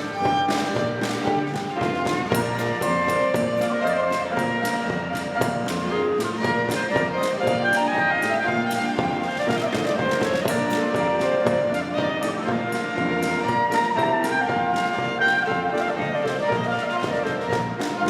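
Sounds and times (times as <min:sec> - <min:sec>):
lively folk dance ensemble: 0:00.0 - 0:18.0.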